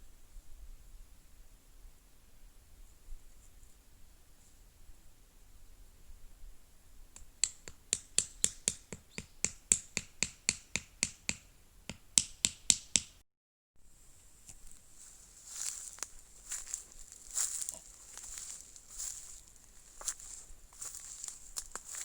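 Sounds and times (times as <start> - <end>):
sharp evenly spaced taps: 7.2 - 13.2.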